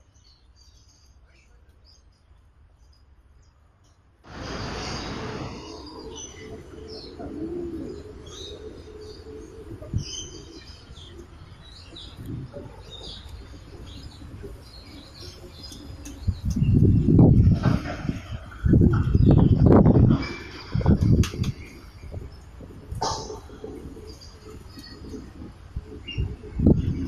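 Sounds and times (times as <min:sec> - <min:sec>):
birds chirping and twittering: 0:00.0 - 0:27.0
rush of noise: 0:04.3 - 0:14.6
dove cooing: 0:05.4 - 0:16.2, 0:17.6 - 0:27.0.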